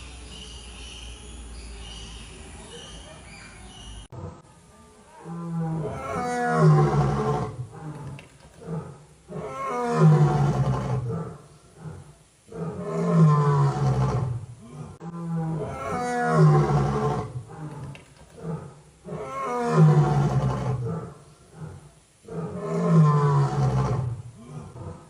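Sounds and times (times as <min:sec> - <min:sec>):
tiger roaring: 0:05.2 - 0:25.0.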